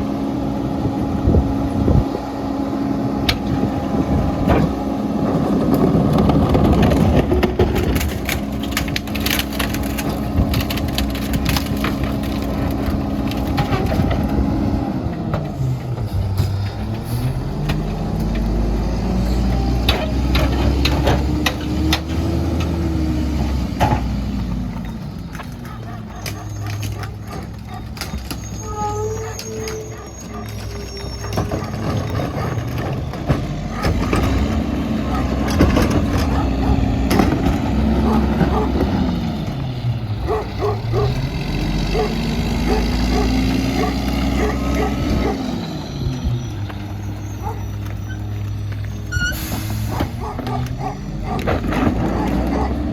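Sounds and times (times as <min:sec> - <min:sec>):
garbage truck engine droning: 0:00.0 - 0:52.9
dog barking: 0:25.7 - 0:27.9, 0:35.0 - 0:35.4, 0:36.2 - 0:36.8, 0:38.0 - 0:39.1, 0:40.2 - 0:41.2, 0:41.9 - 0:45.4, 0:47.4 - 0:47.6, 0:49.9 - 0:52.8.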